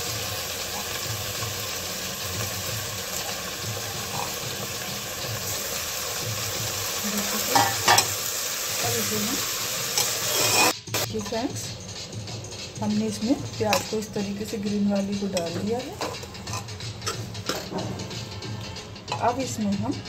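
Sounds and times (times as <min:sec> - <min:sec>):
onions sizzling in hot oil: 0:00.0 - 0:11.6
metal spoon stirring: 0:03.1 - 0:05.6, 0:07.4 - 0:08.2, 0:09.9 - 0:11.4, 0:13.1 - 0:17.7.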